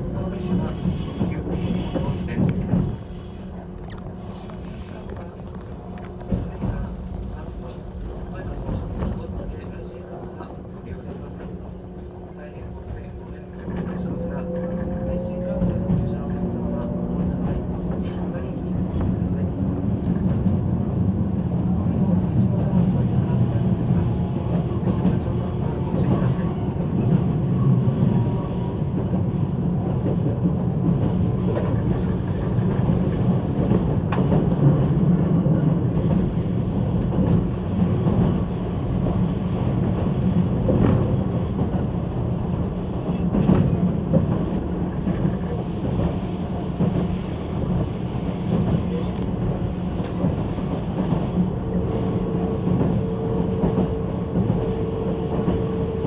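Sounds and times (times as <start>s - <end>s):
train wheels rumbling on rail: 0.0s - 56.0s
rail joint clicks: 0.1s - 9.7s, 19.9s - 20.7s, 22.6s - 56.0s.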